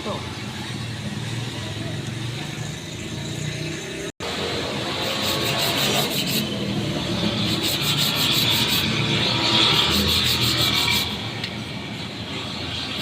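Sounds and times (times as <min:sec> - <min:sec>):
hand rubbing and scraping: 0:05.0 - 0:11.2.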